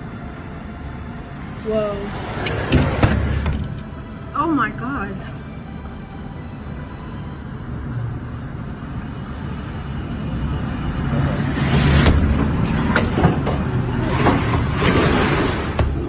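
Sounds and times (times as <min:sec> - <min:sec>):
tornado wind roaring: 0:05.4 - 0:16.0.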